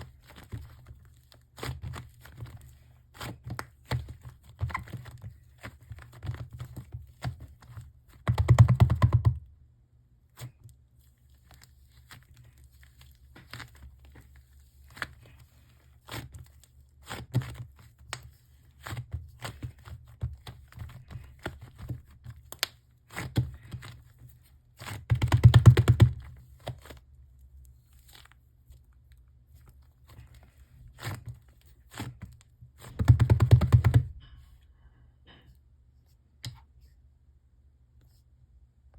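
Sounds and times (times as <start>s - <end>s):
hands squeezing and tearing clay: 0.0s - 9.2s, 10.3s - 34.2s
small clicks and crinkles: 10.3s - 33.6s.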